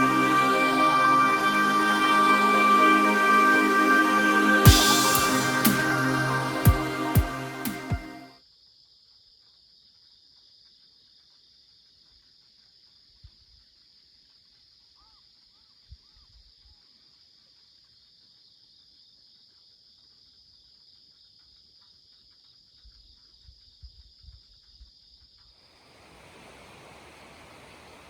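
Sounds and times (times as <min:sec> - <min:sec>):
broad steady hiss: 0:00.0 - 0:08.2, 0:25.8 - 0:28.0.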